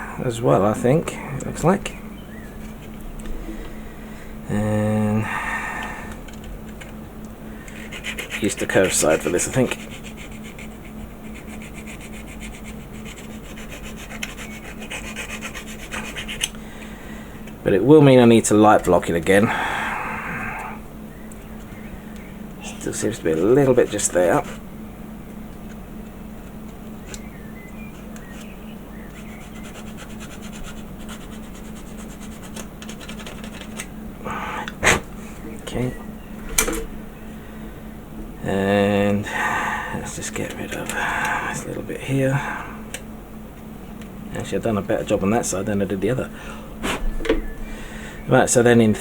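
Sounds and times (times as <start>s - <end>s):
sanding stick rasping on plastic: 7.7s - 16.5s, 22.8s - 24.6s, 27.9s - 33.9s.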